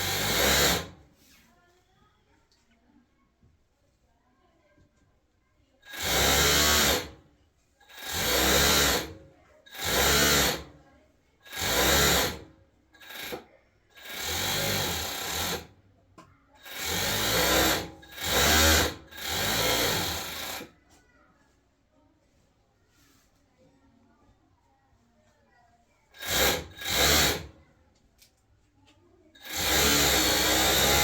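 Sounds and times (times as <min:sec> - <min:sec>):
electric sewing machine running: 0:00.0 - 0:01.0, 0:05.8 - 0:07.2, 0:07.9 - 0:10.7, 0:11.4 - 0:13.4, 0:14.0 - 0:15.8, 0:16.6 - 0:20.7, 0:26.2 - 0:27.6, 0:29.4 - 0:31.0.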